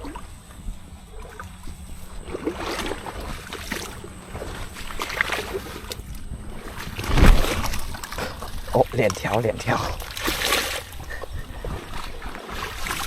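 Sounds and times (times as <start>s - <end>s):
feet wading through shallow water: 0.0s - 13.0s.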